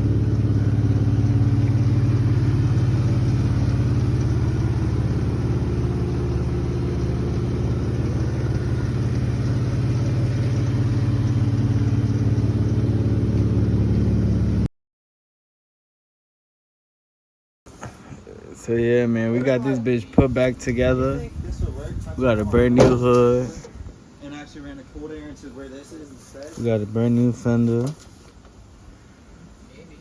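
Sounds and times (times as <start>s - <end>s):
car engine idling: 0.0s - 14.7s.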